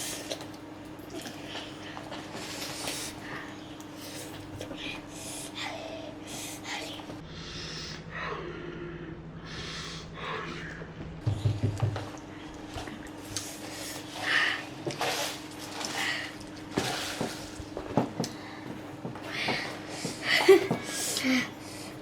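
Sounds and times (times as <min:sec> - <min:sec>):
steady low hum: 0:00.0 - 0:22.0
children sniffing and breathing hard: 0:01.1 - 0:08.0
dull bump: 0:11.2 - 0:12.1.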